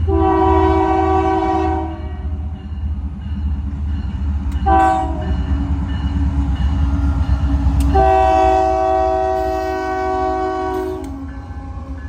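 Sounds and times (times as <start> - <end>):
locomotive air horn blast: 0.0 - 2.2, 4.6 - 5.3, 7.8 - 12.0
train rumbling past: 0.0 - 12.0.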